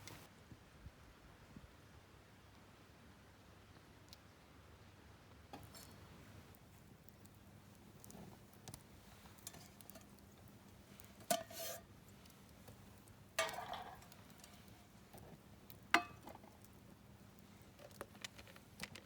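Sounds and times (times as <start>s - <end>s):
cookware and utensils clinking: 9.4s - 10.2s, 10.9s - 11.9s, 13.4s - 14.9s, 16.0s - 16.5s
handling noises: 17.4s - 19.0s.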